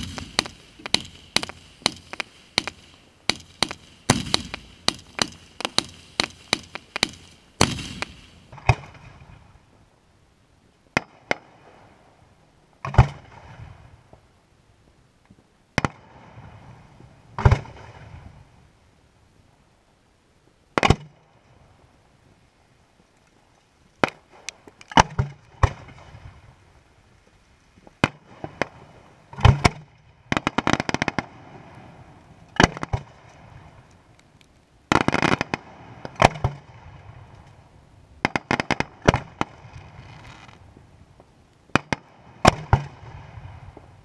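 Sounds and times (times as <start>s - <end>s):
firework shell bursts: 0.0s - 8.6s
crackling firework pops: 0.0s - 9.2s, 17.4s - 18.2s, 20.8s - 21.2s, 24.0s - 26.2s, 27.8s - 31.8s, 32.5s - 37.6s, 38.2s - 44.0s.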